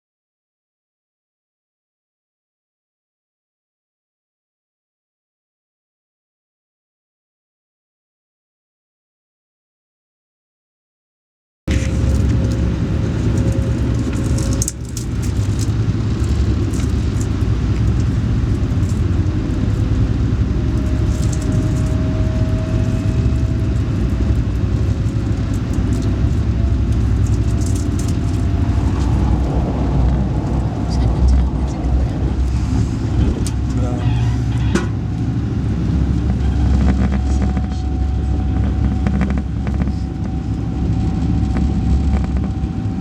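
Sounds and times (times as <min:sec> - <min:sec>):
train rumbling: 0:11.7 - 0:43.0
faint rising tone: 0:26.4 - 0:35.6.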